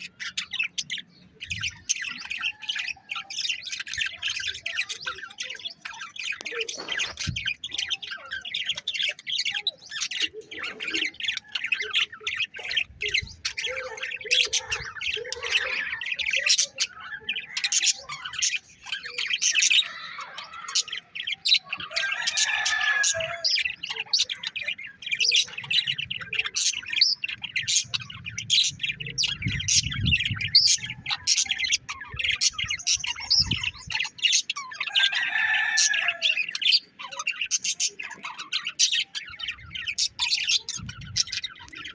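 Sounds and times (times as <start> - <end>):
caged birds chirping and squawking: 0.0 - 41.9.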